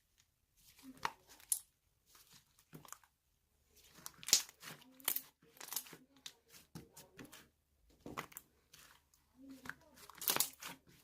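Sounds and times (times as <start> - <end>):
slime crinkling and popping: 3.8 - 6.0, 9.5 - 11.0.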